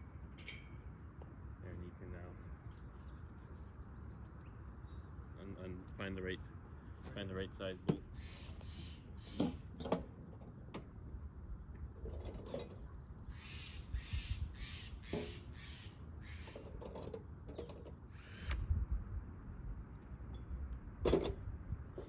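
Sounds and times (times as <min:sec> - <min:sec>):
bird harsh calls: 0:07.9 - 0:09.8, 0:12.9 - 0:16.8
wind rumble on microphone: 0:11.1 - 0:15.1, 0:18.4 - 0:22.0.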